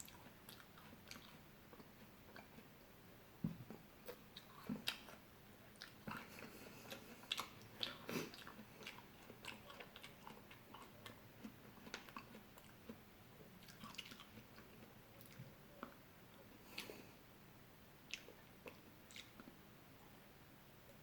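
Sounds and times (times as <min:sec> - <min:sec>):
crunchy fruit chewing: 0:03.7 - 0:16.0.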